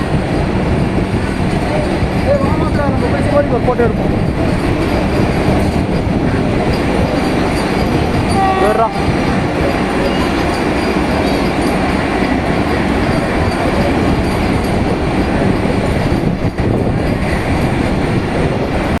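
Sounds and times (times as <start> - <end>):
train running: 0.0 - 19.0.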